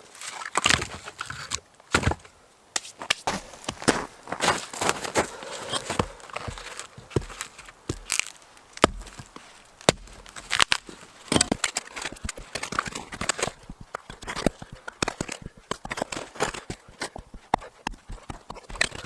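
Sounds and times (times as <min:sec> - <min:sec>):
wood crackling: 0:00.0 - 0:19.0
wood cracking and knocking: 0:06.0 - 0:19.0.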